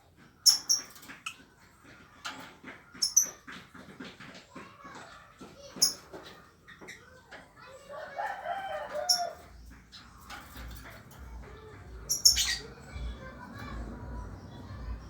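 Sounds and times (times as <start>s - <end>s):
lovebird chick chattering: 0.4s - 1.4s, 3.0s - 3.4s, 12.0s - 12.8s.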